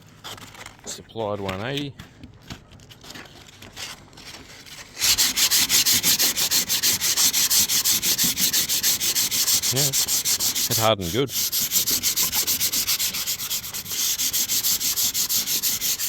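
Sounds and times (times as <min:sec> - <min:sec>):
sandpaper strokes on filler: 0:04.7 - 0:16.0.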